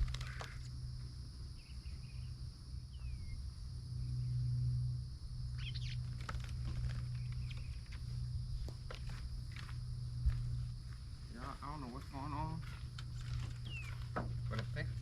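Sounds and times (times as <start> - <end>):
insect drone: 0.0 - 15.0
low hum: 0.0 - 15.0
birds chirping: 1.5 - 4.6, 5.5 - 8.3, 11.1 - 15.0.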